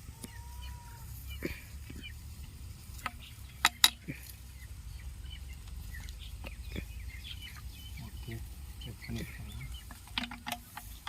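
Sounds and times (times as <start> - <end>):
faint bird chirps: 0.0 - 2.3, 2.9 - 11.0
clicks and knocks of hard parts: 3.0 - 4.1, 9.8 - 11.0.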